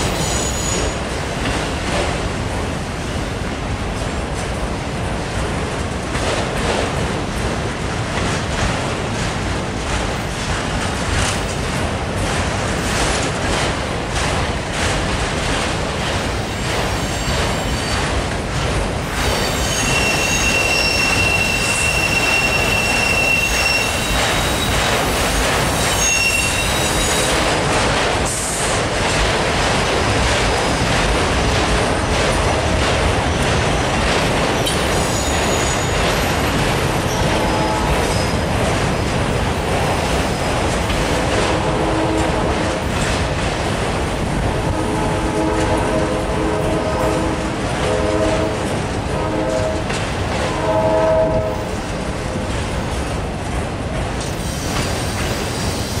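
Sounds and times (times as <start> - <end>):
steel wheels rumbling on rails: 0.0 - 56.0
high-pitched wheel squeal: 0.2 - 1.0, 19.4 - 24.8, 25.9 - 27.3.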